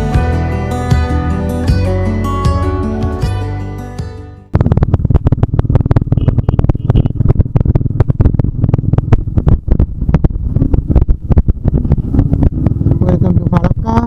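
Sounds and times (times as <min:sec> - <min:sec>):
wind buffeting microphone: 0:06.6 - 0:14.0.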